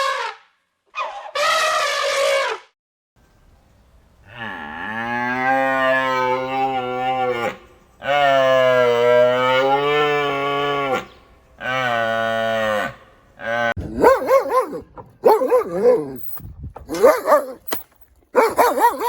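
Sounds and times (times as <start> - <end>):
cow mooing: 4.3 - 14.1.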